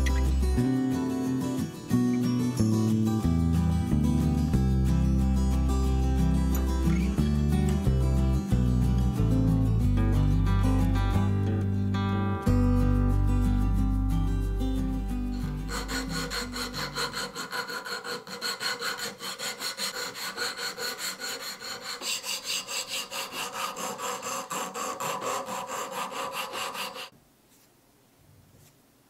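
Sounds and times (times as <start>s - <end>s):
sandpaper rasping on wood: 15.6s - 27.1s.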